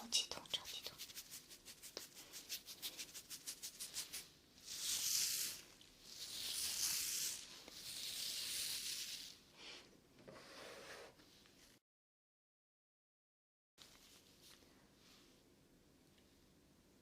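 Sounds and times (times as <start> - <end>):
soft rubbing strokes: 0.4 - 11.8, 13.8 - 15.5.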